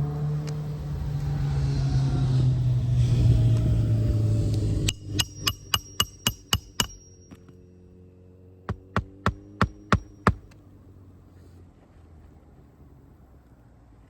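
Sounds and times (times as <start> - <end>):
hammer striking nails: 4.9 - 7.6, 8.7 - 10.6.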